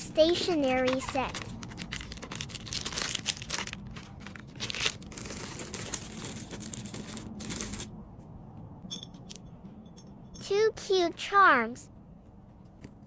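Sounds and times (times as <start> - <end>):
plastic packaging crinkling: 0.8 - 5.2.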